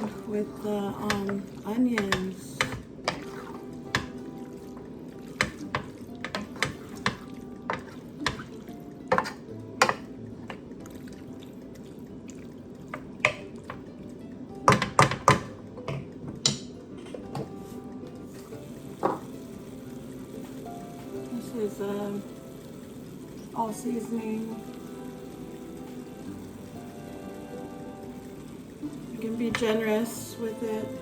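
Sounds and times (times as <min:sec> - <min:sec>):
utensil scraping a pan: 0:05.4 - 0:10.6.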